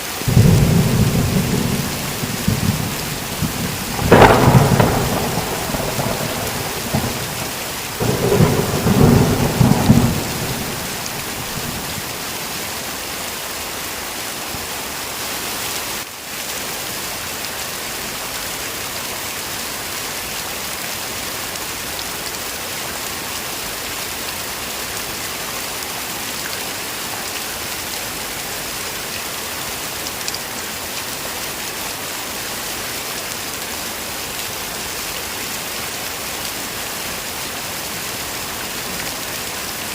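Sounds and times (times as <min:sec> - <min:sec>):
heavy rain: 0:00.0 - 0:39.9
thunder rumbling: 0:00.3 - 0:12.1.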